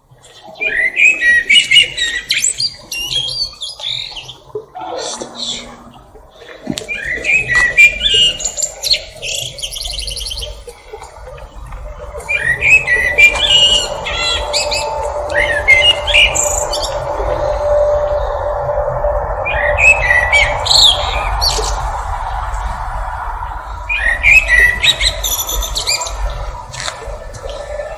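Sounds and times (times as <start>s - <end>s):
low hum: 10.6s - 27.9s
thrush singing whistled phrases: 12.0s - 27.9s.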